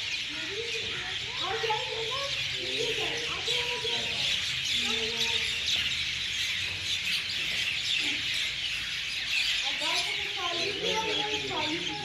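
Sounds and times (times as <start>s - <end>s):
birds chirping in chorus: 0.0s - 12.0s
faint human voices talking: 0.0s - 12.0s.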